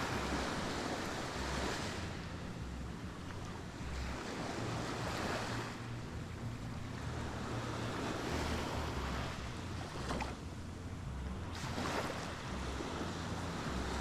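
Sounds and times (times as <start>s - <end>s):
sea surf breaking on beach: 0.0s - 2.6s, 11.4s - 14.0s.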